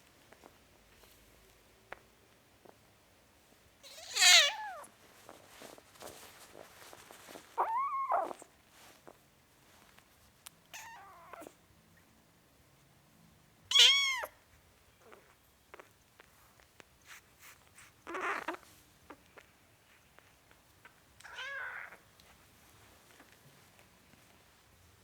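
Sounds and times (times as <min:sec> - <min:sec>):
kitten meowing: 0:03.8 - 0:04.9, 0:07.6 - 0:08.4, 0:13.7 - 0:14.3.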